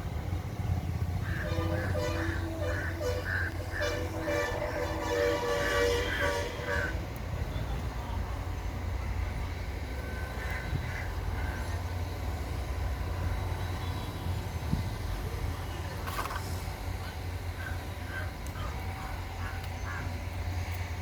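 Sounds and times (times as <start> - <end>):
diesel tractor engine idling: 0.0 - 21.0
birds calling: 0.7 - 6.4.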